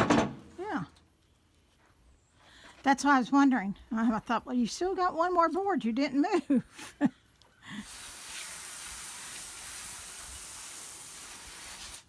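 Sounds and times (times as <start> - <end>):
steady hiss: 7.7 - 12.0.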